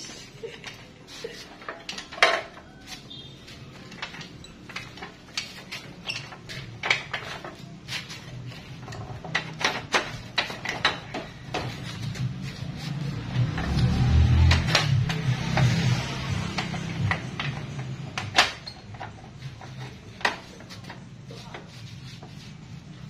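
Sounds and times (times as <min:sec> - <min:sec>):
metal tools clinking: 0:00.3 - 0:12.0.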